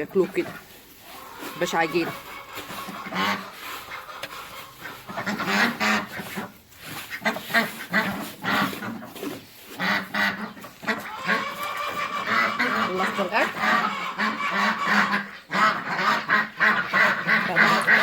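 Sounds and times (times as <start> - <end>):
ducks quacking: 0.0 - 18.0.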